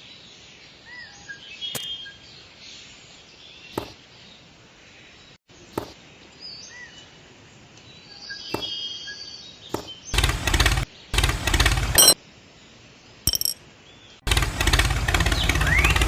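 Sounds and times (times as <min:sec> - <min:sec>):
faint bird chirps: 0:00.0 - 0:07.2, 0:07.8 - 0:10.2.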